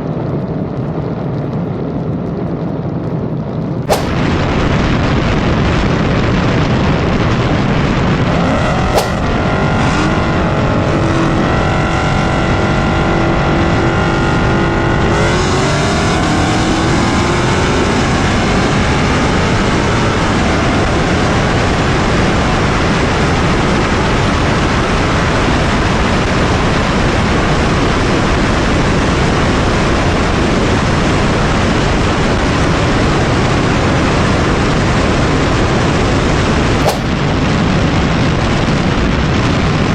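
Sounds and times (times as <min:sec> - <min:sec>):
loud rushing noise: 0:03.9 - 0:04.7, 0:08.6 - 0:09.8, 0:36.8 - 0:37.2
car engine driving hard: 0:08.0 - 0:21.0.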